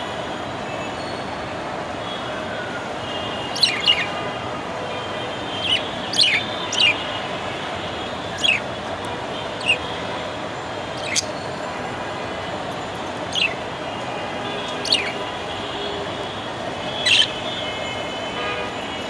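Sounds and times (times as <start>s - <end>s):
budgerigar chirping: 3.5s - 4.2s, 5.6s - 7.0s, 8.4s - 8.6s, 9.6s - 9.8s, 11.0s - 11.4s, 13.3s - 13.6s, 14.8s - 15.2s, 17.0s - 17.3s.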